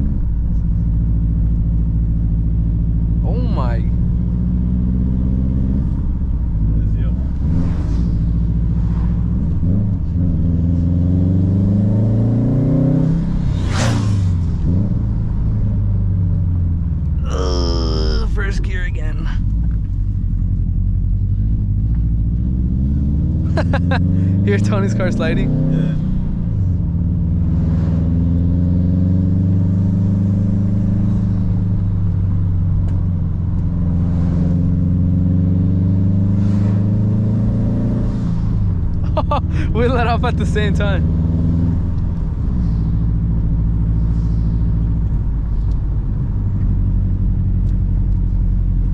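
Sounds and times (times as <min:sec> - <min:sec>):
turbocharged car engine accelerating: 0:03.0 - 0:16.0, 0:17.6 - 0:48.9.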